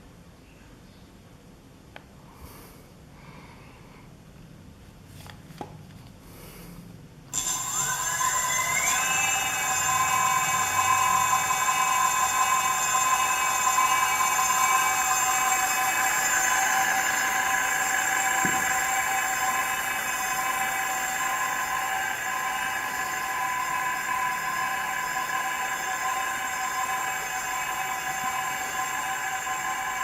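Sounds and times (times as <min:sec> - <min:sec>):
electric motor whine: 0:07.3 - 0:30.0.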